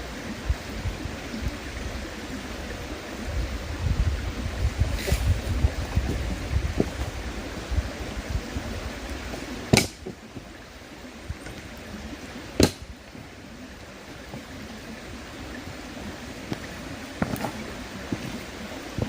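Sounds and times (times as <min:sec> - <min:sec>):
river flowing: 0:00.0 - 0:19.0
campfire wood crackling: 0:04.4 - 0:19.0
sharp fire pops: 0:09.7 - 0:10.1, 0:12.6 - 0:12.9.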